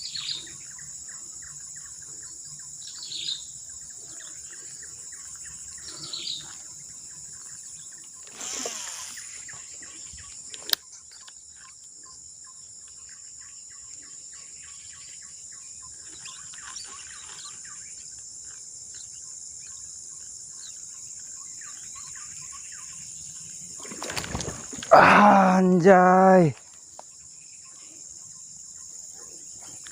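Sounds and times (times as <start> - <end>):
bird chirps: 0.0 - 24.8
insects droning: 0.0 - 29.9
rustling: 23.8 - 25.0.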